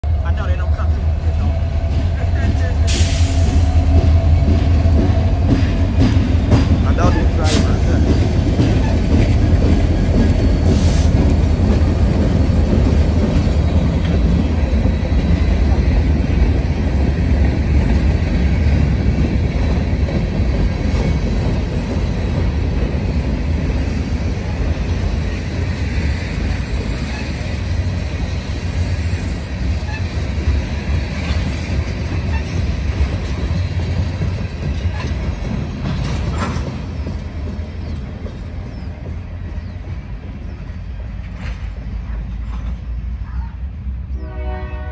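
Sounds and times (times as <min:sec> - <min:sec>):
diesel locomotive engine: 0:00.0 - 0:44.9
train wheels rumbling on rails: 0:00.0 - 0:44.9.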